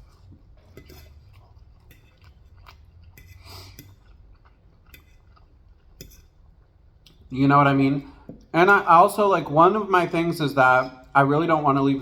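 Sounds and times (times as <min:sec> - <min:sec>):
person chewing food: 0:00.0 - 0:07.3.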